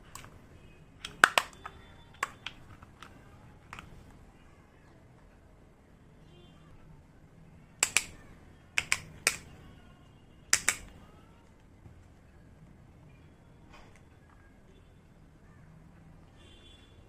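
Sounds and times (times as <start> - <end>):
small hard objects clicking: 1.0 - 3.9, 7.8 - 8.2, 8.8 - 9.5, 10.5 - 11.0.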